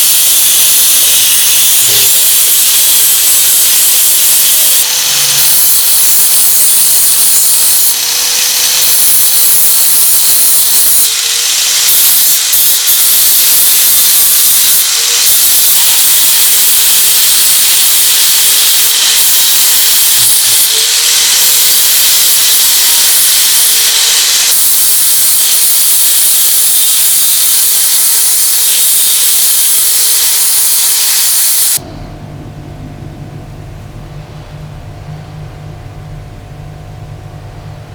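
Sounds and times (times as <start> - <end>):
compressed-air tool hissing: 0.0 - 31.8
low hum: 31.8 - 36.6.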